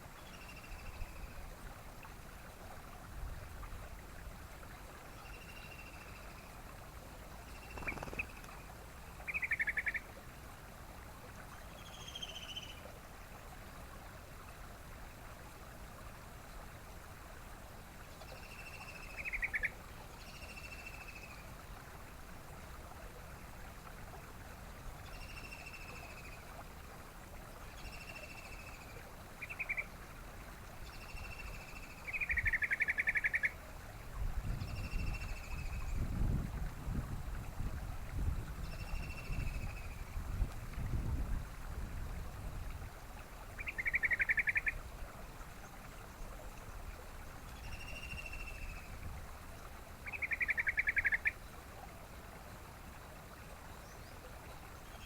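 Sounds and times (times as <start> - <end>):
bird rattling trill: 7.6 - 8.4
bird calling: 43.6 - 44.8, 50.0 - 51.4.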